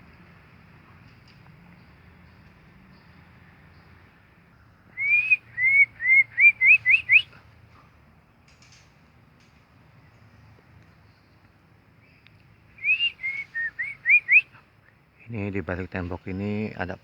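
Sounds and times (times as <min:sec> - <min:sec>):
bird whistling rising notes: 0:05.0 - 0:07.3, 0:12.8 - 0:14.5.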